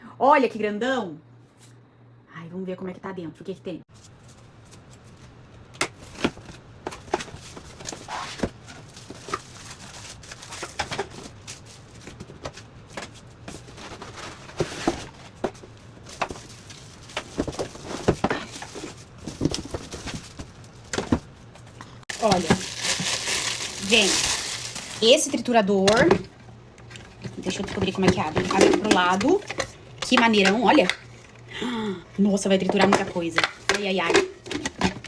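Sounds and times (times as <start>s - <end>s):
cardboard and plastic crinkling: 5.9s - 26.2s.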